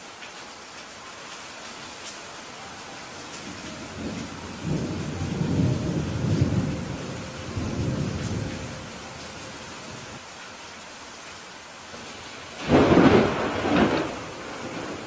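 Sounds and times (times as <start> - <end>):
steady rain falling: 0.0 - 15.0
thunder rolling: 3.4 - 10.1, 12.5 - 15.0.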